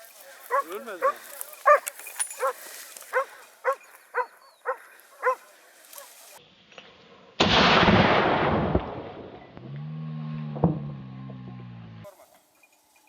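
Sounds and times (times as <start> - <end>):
loud boom: 7.4 - 9.6.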